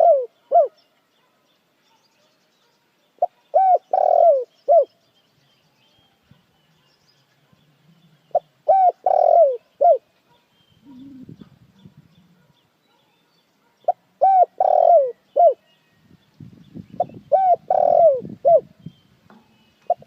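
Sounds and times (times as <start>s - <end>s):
dove cooing: 0.0s - 0.8s, 3.2s - 4.9s, 7.9s - 10.1s, 10.8s - 12.5s, 13.8s - 15.6s, 17.0s - 18.7s.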